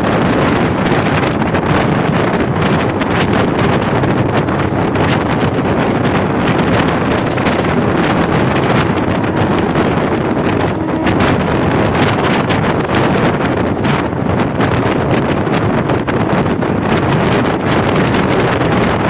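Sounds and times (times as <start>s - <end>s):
wind buffeting microphone: 0.0s - 19.0s
low rumble: 0.3s - 15.4s.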